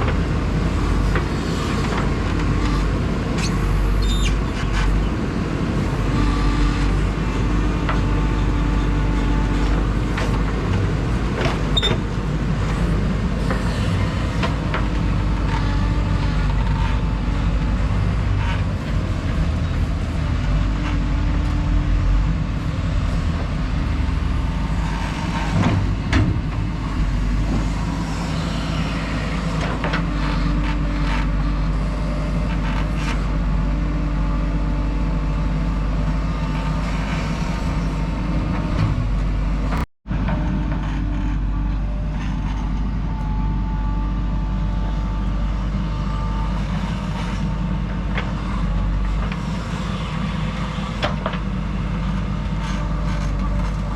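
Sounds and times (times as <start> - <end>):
diesel engine under load: 0.0 - 53.9.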